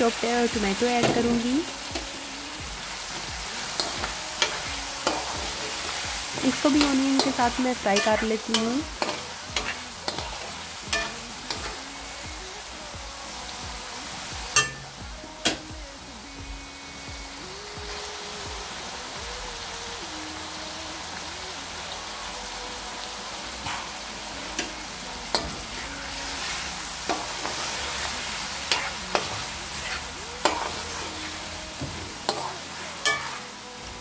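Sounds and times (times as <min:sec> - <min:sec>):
onions and tomatoes sizzling: 0:00.0 - 0:34.0
spatula scraping a pan: 0:08.0 - 0:11.7, 0:25.3 - 0:33.5.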